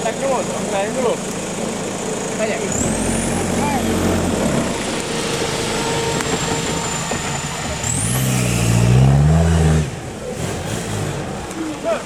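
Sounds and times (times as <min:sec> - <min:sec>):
vehicle engine revving hard: 0:02.6 - 0:11.9.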